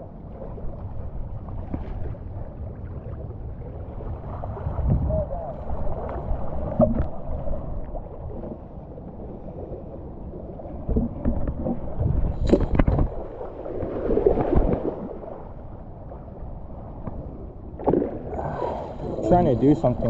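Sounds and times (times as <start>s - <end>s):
water splashing and gurgling: 0.0s - 20.0s
wind rumbling on microphone: 0.0s - 20.0s
rush of water: 10.9s - 15.6s.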